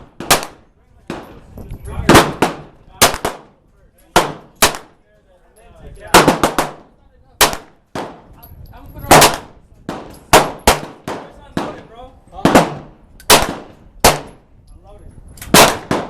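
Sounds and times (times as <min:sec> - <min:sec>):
gunshots with echo: 0:09.1 - 0:11.8, 0:15.6 - 0:16.0.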